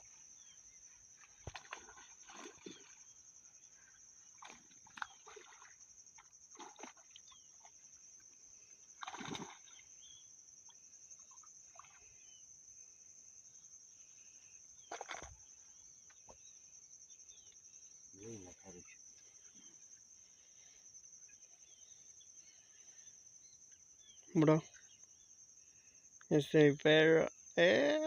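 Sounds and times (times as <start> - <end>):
faint insect trill: 0.0 - 28.0
knocks or splashes: 1.3 - 3.0, 4.4 - 5.8, 6.5 - 7.3, 9.0 - 9.8, 14.9 - 15.4.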